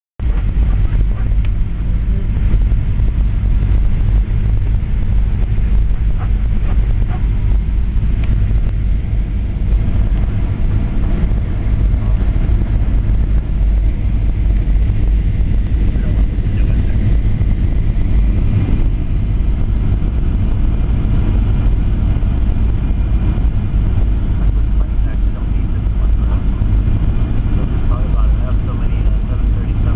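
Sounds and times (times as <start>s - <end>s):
airplane cabin rumble: 0.2s - 29.9s
faint high engine whine: 0.2s - 29.9s.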